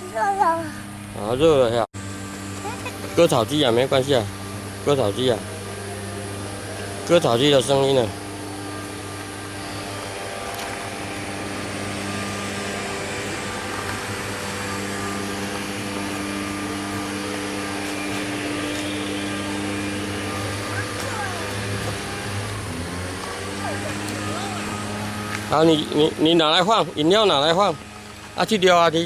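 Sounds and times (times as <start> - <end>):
lawn mower engine drone: 0.0 - 29.0.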